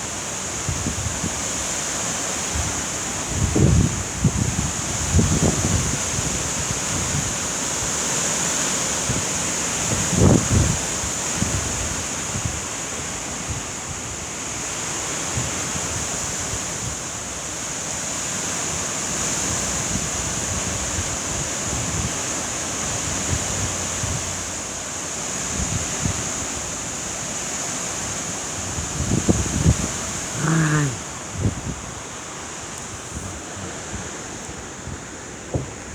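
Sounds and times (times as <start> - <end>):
wind gusts buffeting microphone: 2.4 - 8.0, 9.0 - 14.2, 19.4 - 35.9
heavy rain pouring: 20.5 - 35.9.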